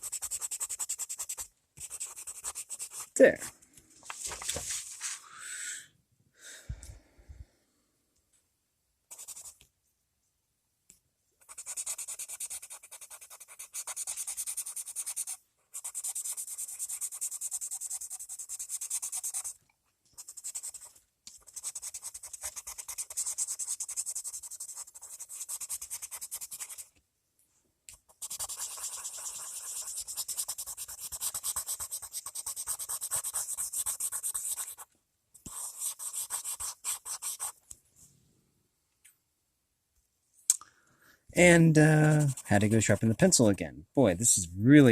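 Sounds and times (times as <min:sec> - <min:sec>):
pencil scratching on paper: 0:00.0 - 0:03.4, 0:09.1 - 0:09.6, 0:11.4 - 0:27.0, 0:28.0 - 0:37.6, 0:42.0 - 0:43.1.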